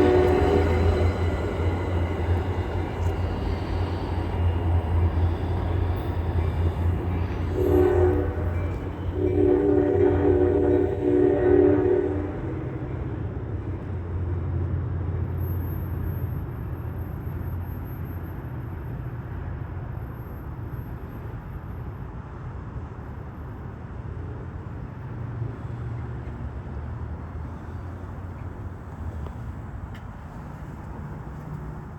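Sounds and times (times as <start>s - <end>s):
train horn: 0.0s - 4.8s, 5.5s - 13.0s
train rumbling by: 0.0s - 31.9s.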